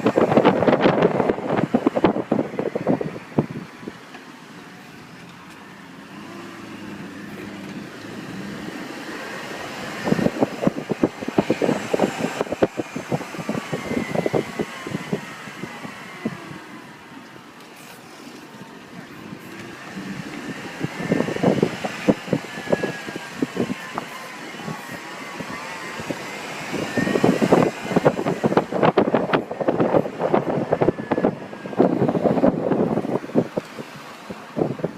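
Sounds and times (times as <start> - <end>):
car engine with high whine: 0.0 - 34.9.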